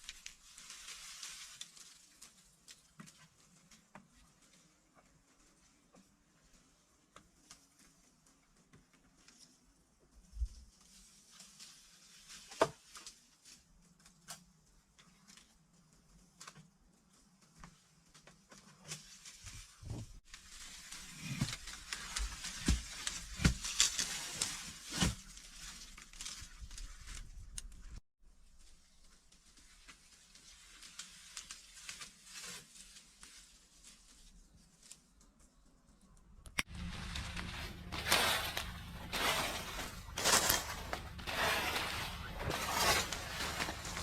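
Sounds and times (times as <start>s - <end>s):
rustling: 0.0s - 44.0s
steady low rumble: 36.7s - 44.0s.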